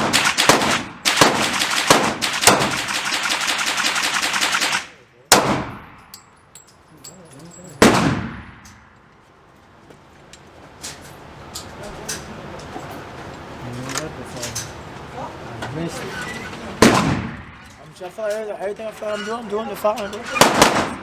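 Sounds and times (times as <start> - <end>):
pistol gunshots with echo: 0.0 - 6.0, 7.8 - 8.6, 16.8 - 17.6, 20.4 - 21.0.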